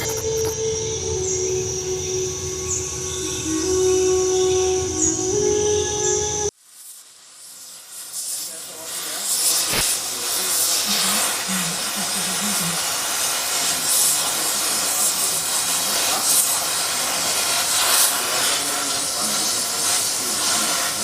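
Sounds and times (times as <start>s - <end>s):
loud pressurized hiss: 0.0s - 21.0s.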